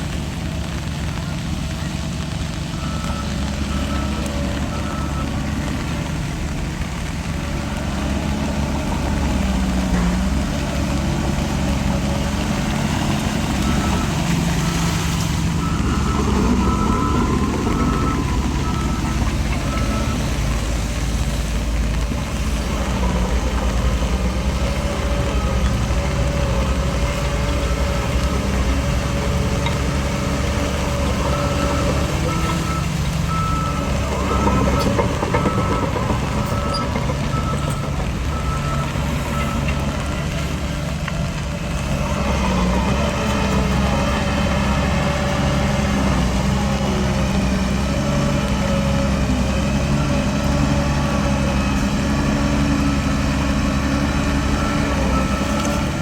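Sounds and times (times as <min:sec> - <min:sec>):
heavy diesel machinery running: 0:00.0 - 0:56.0
reversing alarm beeping: 0:02.7 - 0:06.0, 0:13.4 - 0:20.8, 0:24.9 - 0:40.3.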